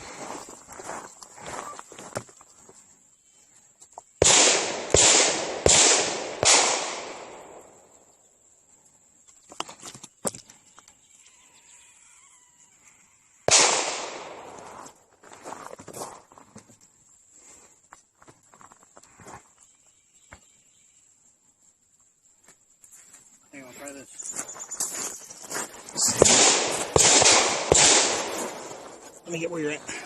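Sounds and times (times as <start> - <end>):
gunshots with long echo: 4.2 - 7.9, 13.5 - 14.8, 26.0 - 29.2.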